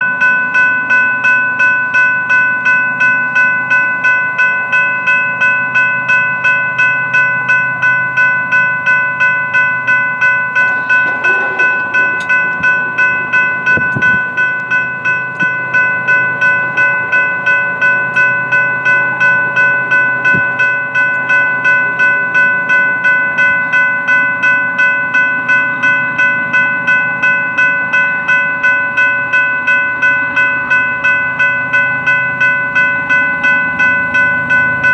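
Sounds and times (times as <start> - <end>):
crossing warning bell ringing: 0.0 - 34.9
freight train rumbling past: 9.3 - 22.8.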